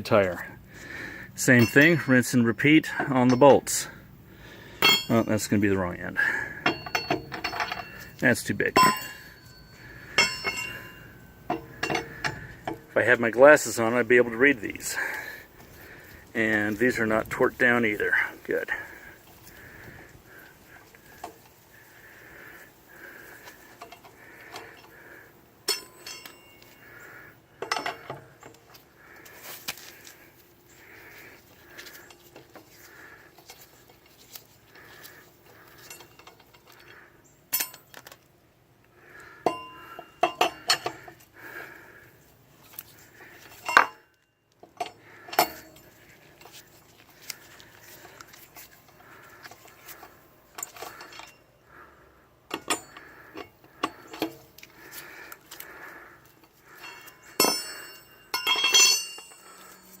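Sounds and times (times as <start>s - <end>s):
ringing metal clatter: 1.4s - 3.9s, 4.8s - 13.8s, 25.6s - 26.8s, 39.5s - 41.0s, 43.5s - 44.2s, 44.8s - 46.0s, 52.5s - 54.4s, 56.8s - 60.0s
lug wrench metal clicks: 6.6s - 12.9s, 52.5s - 55.7s.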